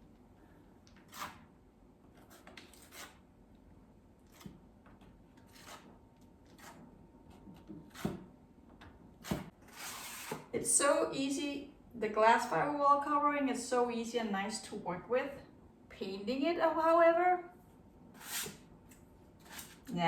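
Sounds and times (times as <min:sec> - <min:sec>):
trowel scraping on wall: 0:01.0 - 0:01.5, 0:02.2 - 0:03.2, 0:05.4 - 0:06.9, 0:09.2 - 0:10.5, 0:18.2 - 0:18.6, 0:19.4 - 0:19.9.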